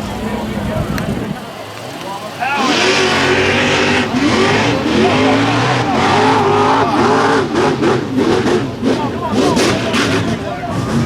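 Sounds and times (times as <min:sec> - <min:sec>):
truck engine revving hard: 0:02.4 - 0:11.0.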